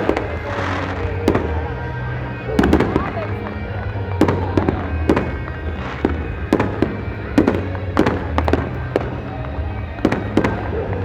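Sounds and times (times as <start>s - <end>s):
fireworks bangs: 0.0s - 11.0s
music: 0.0s - 11.0s.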